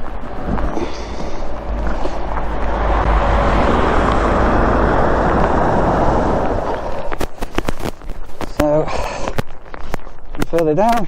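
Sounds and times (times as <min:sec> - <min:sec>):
car tyres hissing through water: 0:00.8 - 0:07.2.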